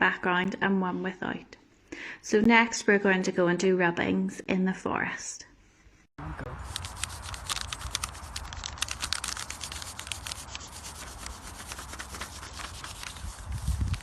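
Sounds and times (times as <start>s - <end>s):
crayon rasping on paper: 6.6s - 14.0s.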